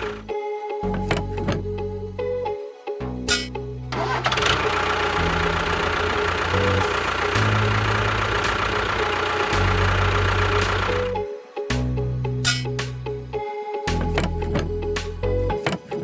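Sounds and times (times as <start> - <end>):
background music bass: 0.0 - 16.0
small motor running roughly: 4.2 - 11.1.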